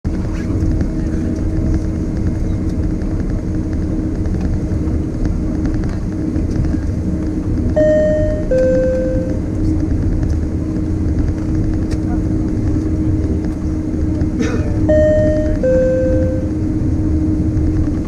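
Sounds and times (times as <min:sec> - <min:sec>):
aircraft cabin engine noise: 0:00.1 - 0:18.0
two-note cabin chime: 0:07.8 - 0:09.4, 0:14.8 - 0:16.6.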